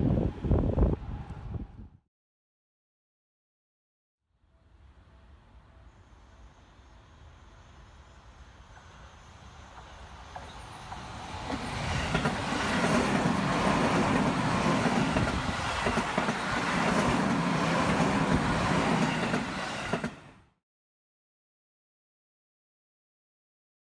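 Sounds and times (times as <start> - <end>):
train wheels running on rails: 7.2 - 20.4
wheels clacking over rail joints: 9.8 - 20.2.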